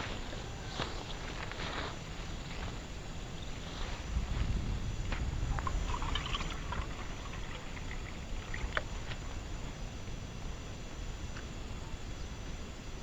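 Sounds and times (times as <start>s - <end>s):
wind buffeting microphone: 2.4s - 10.4s.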